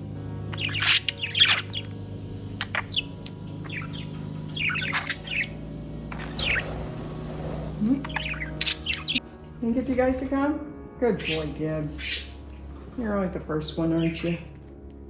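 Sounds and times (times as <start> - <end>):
budgies chattering: 0.0 - 9.2, 11.1 - 14.5
low hum: 0.0 - 11.8.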